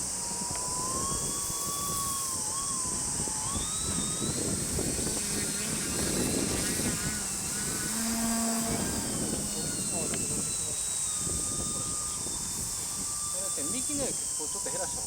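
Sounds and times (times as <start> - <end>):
electric motor and propeller whining: 0.0 - 15.0
steady high hiss: 0.0 - 15.0.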